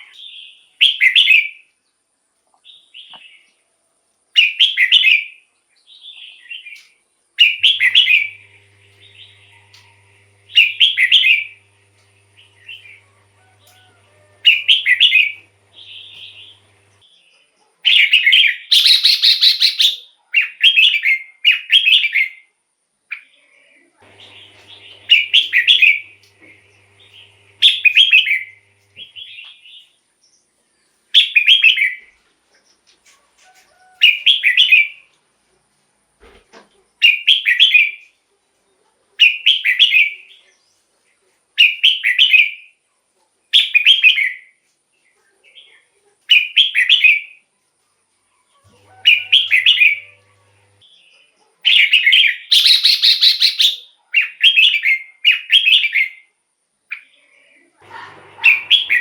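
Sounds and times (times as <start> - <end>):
bulbul singing: 7.6 - 17.0, 24.0 - 29.4, 49.0 - 50.8, 57.9 - 59.0.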